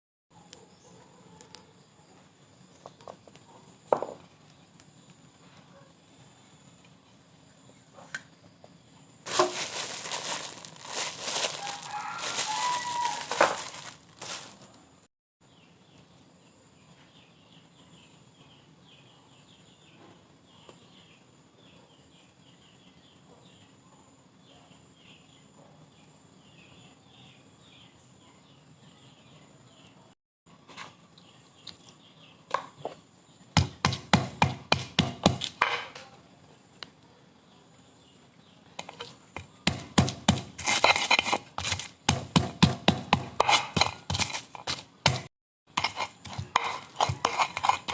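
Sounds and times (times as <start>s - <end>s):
faint high chirping: 8.9s - 14.8s
rustling and clattering: 9.3s - 14.8s.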